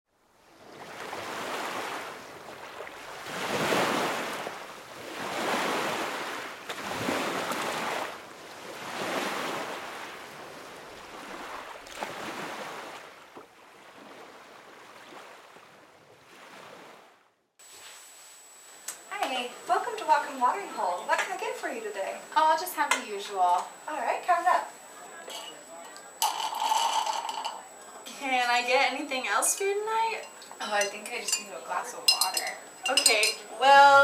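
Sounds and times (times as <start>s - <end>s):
waves washing in: 0.3s - 18.6s.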